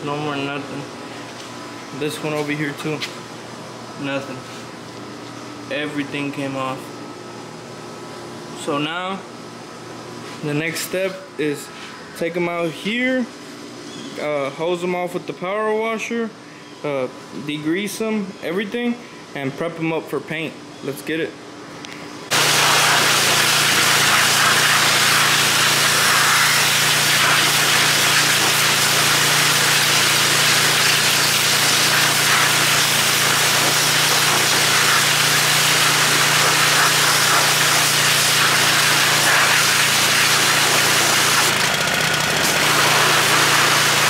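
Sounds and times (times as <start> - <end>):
water jet hissing: 22.3 - 41.6, 42.4 - 44.0
pressure washer motor humming: 22.3 - 44.0.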